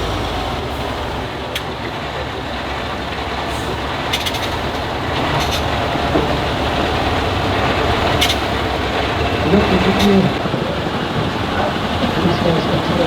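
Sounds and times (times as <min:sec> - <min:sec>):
truck engine rumbling: 0:00.0 - 0:13.0
short sharp clanks: 0:03.5 - 0:06.6.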